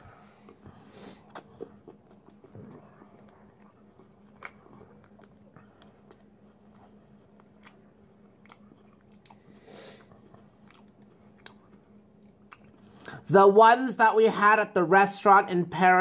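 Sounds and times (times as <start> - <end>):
low steady hum: 0.0 - 16.0
faint chewing: 0.2 - 13.2.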